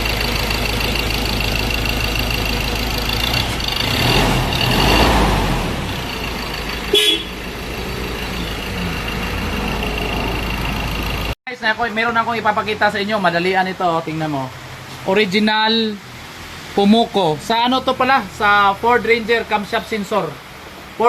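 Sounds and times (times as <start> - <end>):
diesel engine running: 0.0 - 11.4
brief horn toot: 6.9 - 7.5.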